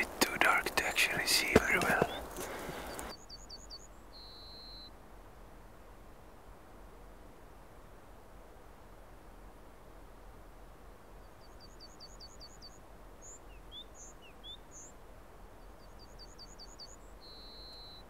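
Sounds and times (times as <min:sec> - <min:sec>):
songbird calling: 0:00.0 - 0:04.9, 0:11.2 - 0:18.0
faint outdoor hiss: 0:00.0 - 0:18.0.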